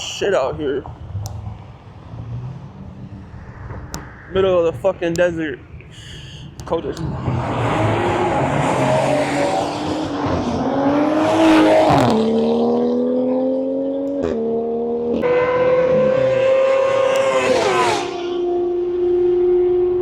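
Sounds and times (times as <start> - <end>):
car accelerating through gears: 0.8 - 20.0.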